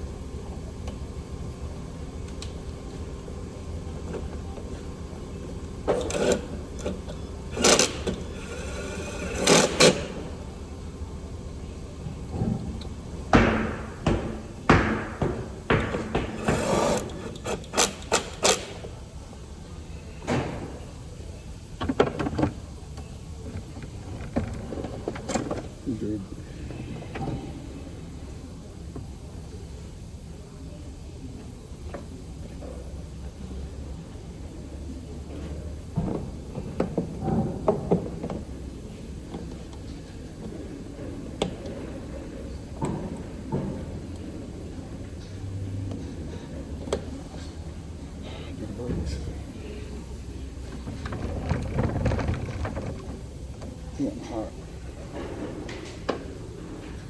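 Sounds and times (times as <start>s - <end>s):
steady low hum: 0.0s - 57.0s
knocks and clatters: 50.6s - 54.0s.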